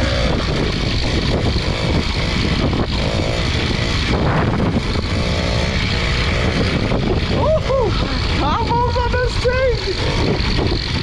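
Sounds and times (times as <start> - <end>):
small bicycle engine running: 0.0 - 11.0.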